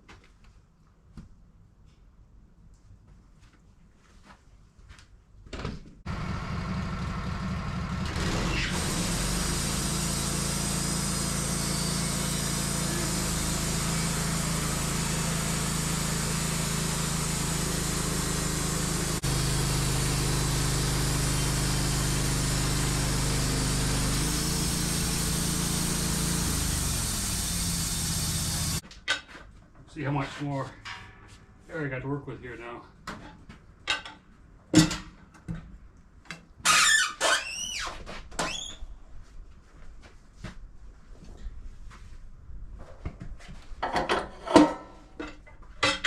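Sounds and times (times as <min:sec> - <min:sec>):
bandsaw mill sawing log: 0:06.1 - 0:28.8.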